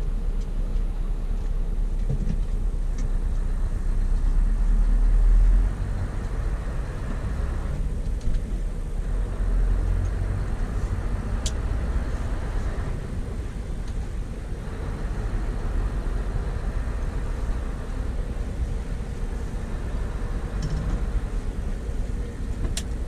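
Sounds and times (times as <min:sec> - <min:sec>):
diesel truck engine rumbling: 0:00.0 - 0:23.0.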